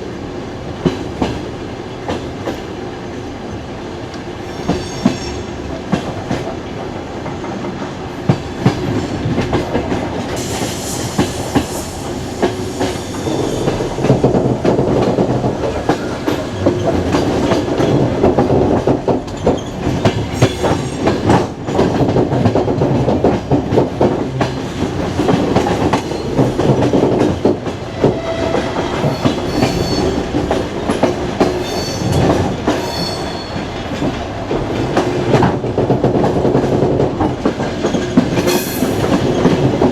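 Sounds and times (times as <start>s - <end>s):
train carriage rolling on rails: 0.0s - 39.9s
wheels clickety-clack: 4.7s - 33.0s, 33.6s - 39.9s
wheel squeals: 27.9s - 30.4s.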